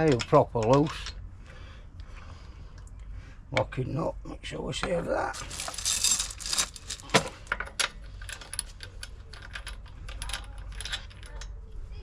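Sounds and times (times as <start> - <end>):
metal wheel nuts and tools clinking: 4.8 - 11.4.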